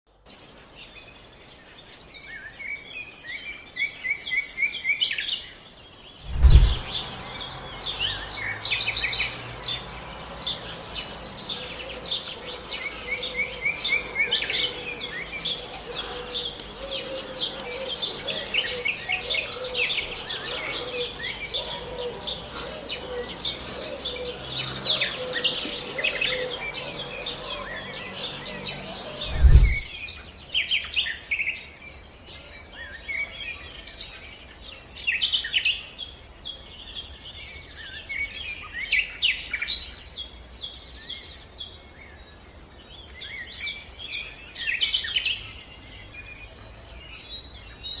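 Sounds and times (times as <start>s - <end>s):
songbirds singing and chirping: 0.1s - 48.0s
low thump: 6.3s - 7.0s, 29.3s - 29.9s.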